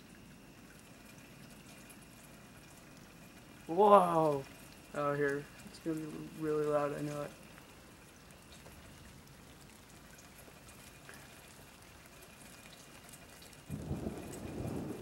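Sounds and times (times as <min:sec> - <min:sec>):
rain falling: 0:00.0 - 0:15.0
thunder rumbling: 0:13.7 - 0:15.0.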